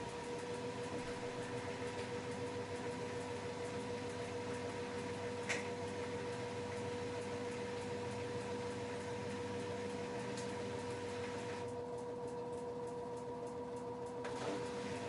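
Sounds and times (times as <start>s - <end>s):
washing machine hum and whine: 0.0s - 15.0s
click: 11.6s - 14.2s.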